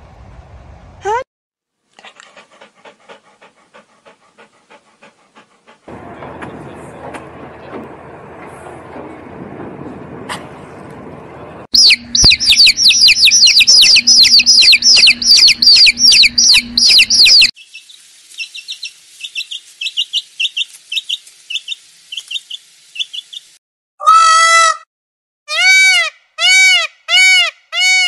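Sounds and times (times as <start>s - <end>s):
high down-sliding bird calls: 11.8s - 23.5s
short high bird chirps: 11.8s - 23.5s.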